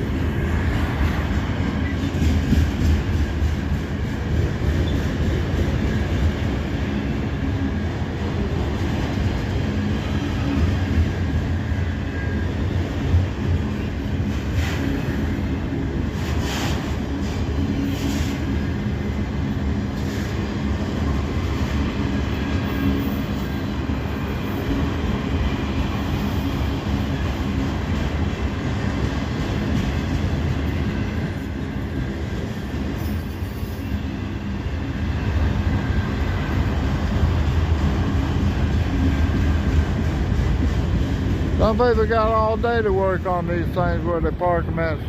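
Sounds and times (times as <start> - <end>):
train wheel clacks: 0.0 - 6.9, 12.7 - 33.9, 35.6 - 43.8
train wheels rumbling on rails: 0.0 - 45.0.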